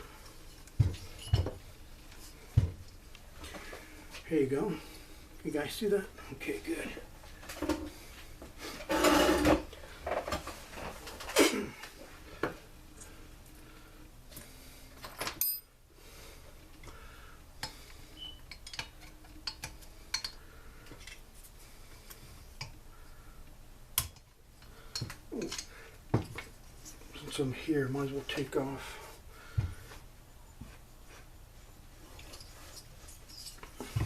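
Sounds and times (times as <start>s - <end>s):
small clinks and knocks: 0.6s - 1.6s.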